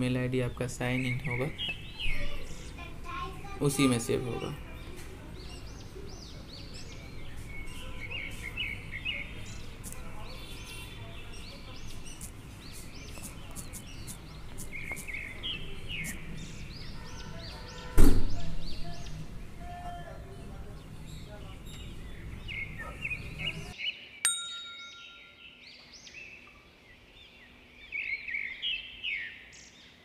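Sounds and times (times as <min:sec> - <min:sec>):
small birds chirping: 0:00.0 - 0:30.0
loud thump: 0:18.0 - 0:18.4.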